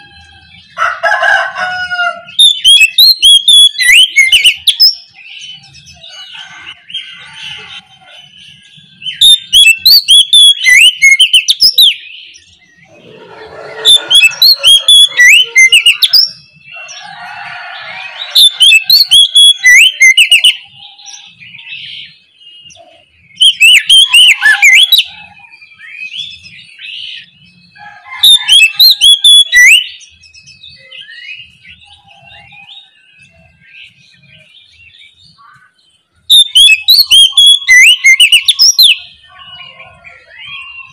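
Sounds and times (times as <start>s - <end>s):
soft bird calls: 0.0s - 40.9s
bird singing whistled notes: 2.3s - 17.1s, 17.8s - 40.9s.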